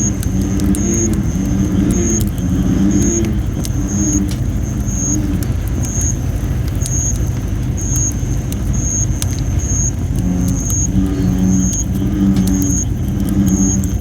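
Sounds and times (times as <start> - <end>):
bullfrogs droning calls: 0.0 - 14.0
campfire crackling: 0.0 - 14.0.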